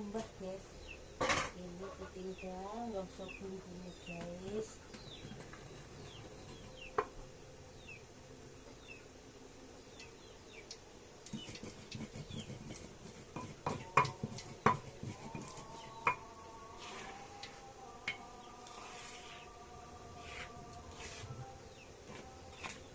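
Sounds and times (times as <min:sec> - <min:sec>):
small birds chirping faintly: 0:00.0 - 0:22.9
pestle scraping in stone mortar: 0:11.3 - 0:16.2
stone knocking on stone: 0:13.3 - 0:16.2.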